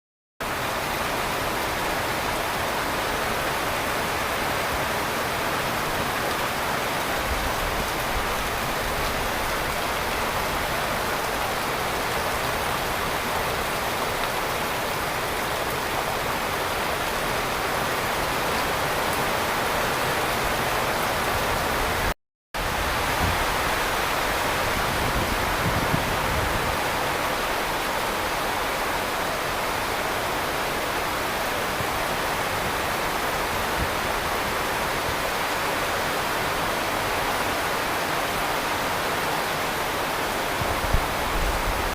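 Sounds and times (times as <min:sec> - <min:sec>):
heavy rain falling: 0:00.4 - 0:41.9.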